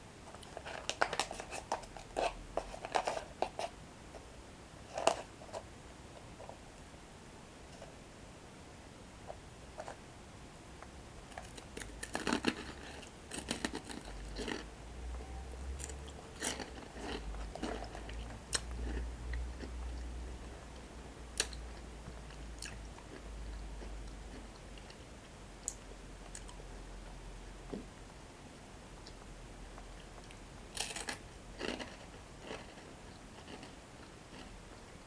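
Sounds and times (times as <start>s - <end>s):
faint low hum: 0.0s - 35.0s
crunching and chewing breadsticks: 0.3s - 3.8s, 11.3s - 14.7s, 15.8s - 20.8s, 21.4s - 26.6s, 29.0s - 34.8s.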